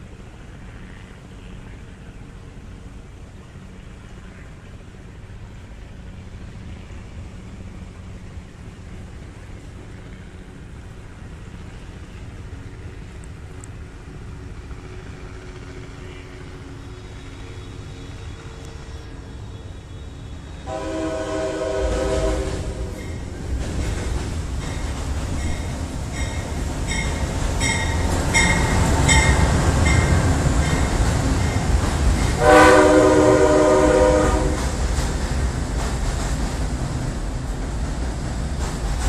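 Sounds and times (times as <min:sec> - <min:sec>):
train rumbling across bridge: 0:00.0 - 0:39.0
train horn blasts: 0:20.6 - 0:23.2, 0:32.4 - 0:34.8
train wheels clacking: 0:20.6 - 0:39.0.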